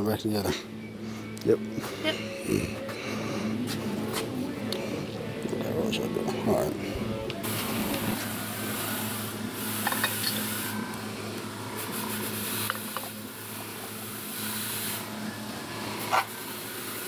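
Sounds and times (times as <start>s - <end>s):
steady low hum: 0.0s - 17.0s
high hiss: 7.4s - 10.8s, 11.7s - 15.2s.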